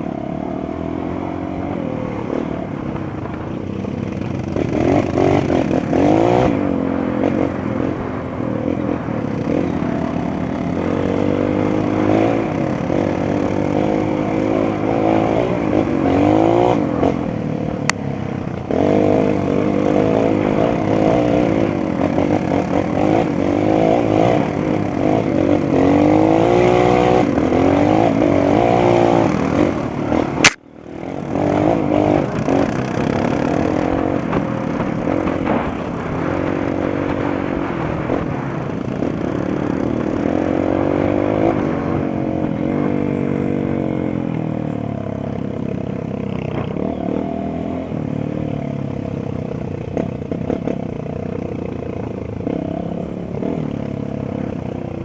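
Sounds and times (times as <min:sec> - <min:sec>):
motorcycle engine revving: 0:00.0 - 0:55.0
sharp click: 0:30.4 - 0:30.6.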